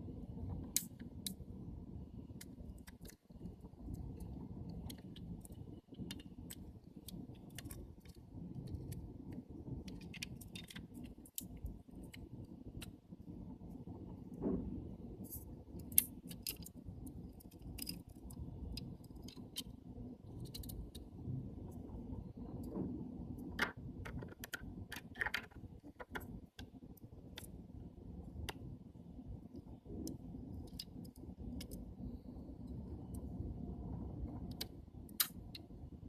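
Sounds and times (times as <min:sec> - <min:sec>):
low steady hum: 0:00.0 - 0:36.0
small metal parts clicking: 0:02.4 - 0:13.0, 0:15.2 - 0:21.2.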